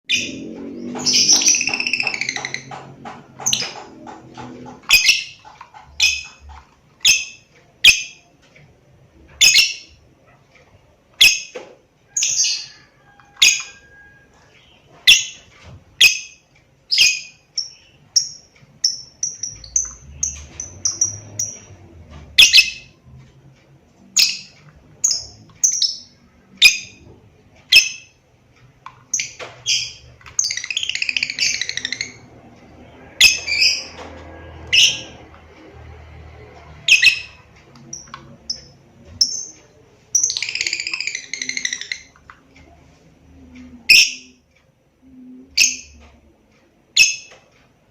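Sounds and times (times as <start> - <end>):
lovebird chirping: 0.1 - 2.8, 4.8 - 6.4, 7.0 - 8.2, 9.4 - 10.0, 14.7 - 21.7, 22.3 - 23.0, 29.1 - 32.2, 36.8 - 42.2, 43.7 - 44.4, 45.2 - 46.1.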